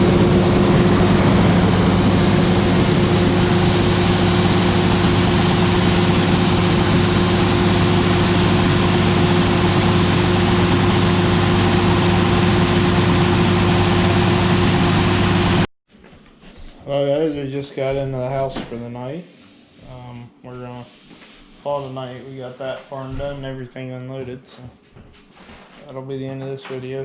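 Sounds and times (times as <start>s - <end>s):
heavy machinery engine droning: 0.0s - 15.7s.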